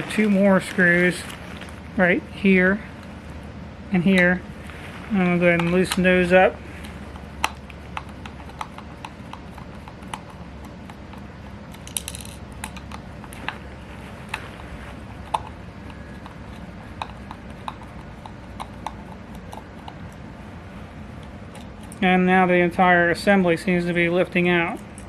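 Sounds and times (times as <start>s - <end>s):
screwdriver clicking on screws: 7.1s - 13.6s.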